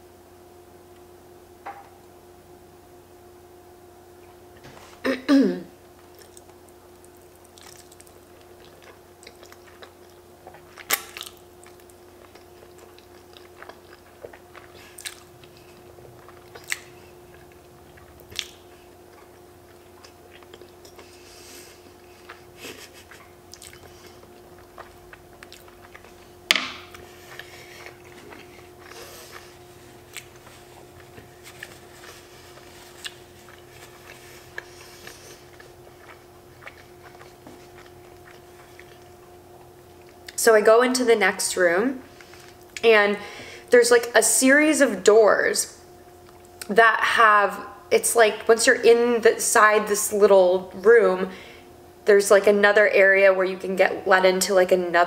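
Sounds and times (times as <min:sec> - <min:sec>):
faint steady hum: 0:00.0 - 0:55.0
person chewing food: 0:06.0 - 0:40.4, 0:42.1 - 0:42.8, 0:46.0 - 0:46.7.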